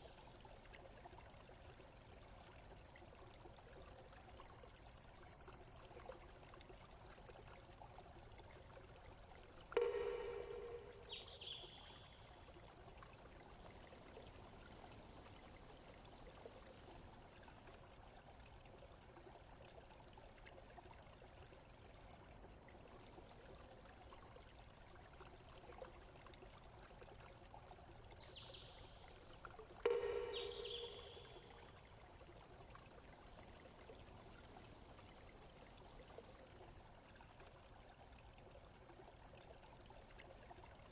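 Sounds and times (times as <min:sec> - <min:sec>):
faint flowing water: 0:00.0 - 0:40.9
ringing pitched tone: 0:09.8 - 0:11.3, 0:29.9 - 0:31.5
high bird chirps: 0:29.9 - 0:31.5.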